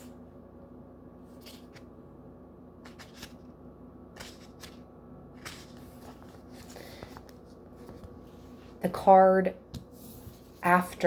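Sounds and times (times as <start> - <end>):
faint steady hum: 0.0 - 11.0
cards being shuffled: 2.8 - 3.5, 4.2 - 4.8, 5.4 - 8.2.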